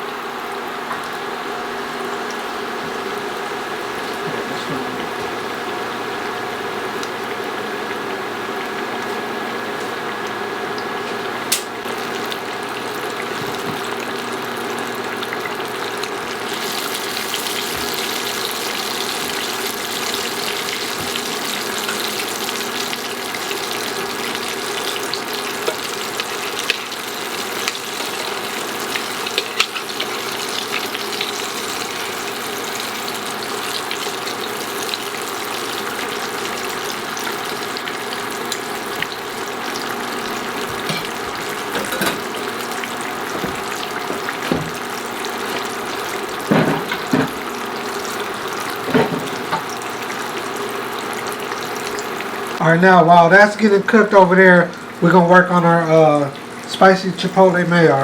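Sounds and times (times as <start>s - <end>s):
chicken deep-frying in oil: 0.0s - 58.0s
oil popping and crackling: 2.0s - 52.6s.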